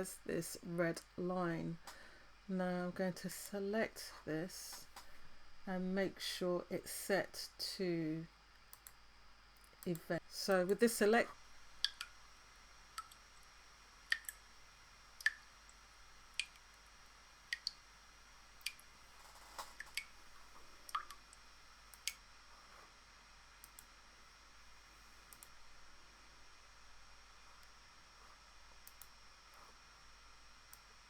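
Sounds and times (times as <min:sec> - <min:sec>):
computer mouse clicking: 0:08.7 - 0:09.0, 0:21.9 - 0:22.2, 0:23.6 - 0:23.9, 0:25.2 - 0:25.6, 0:28.8 - 0:29.7.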